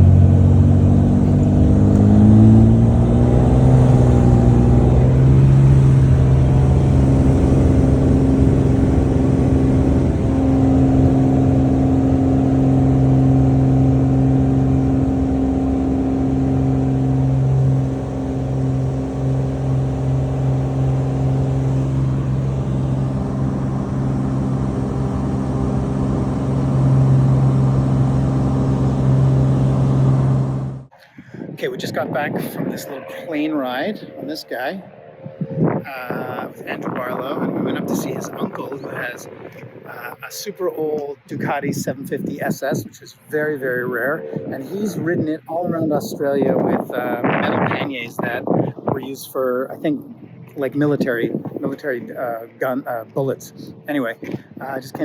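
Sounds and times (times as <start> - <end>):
light aircraft engine revving: 0.0 - 55.0.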